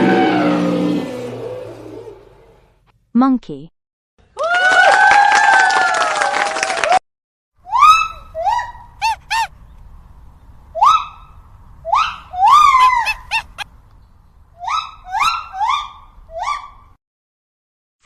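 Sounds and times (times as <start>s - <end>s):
monkeys hooting and yelping: 7.6s - 9.7s, 10.7s - 13.7s, 14.6s - 16.9s.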